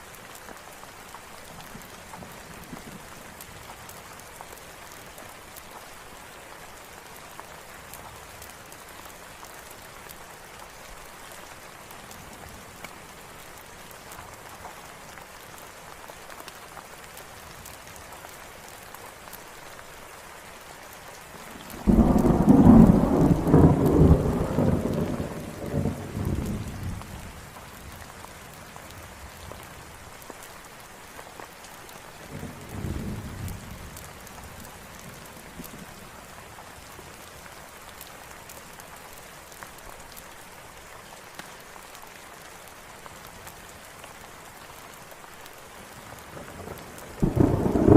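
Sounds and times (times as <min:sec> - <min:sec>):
steady rain falling: 0:00.0 - 0:47.9
thunder rumbling: 0:21.8 - 0:27.0, 0:46.5 - 0:47.9.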